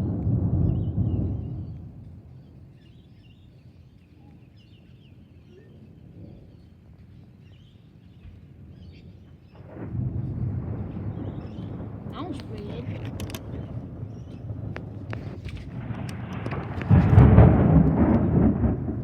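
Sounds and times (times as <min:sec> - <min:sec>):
thunder rumbling: 0:00.0 - 0:02.6, 0:08.5 - 0:19.0
small birds chirping: 0:00.6 - 0:09.7, 0:10.9 - 0:17.0.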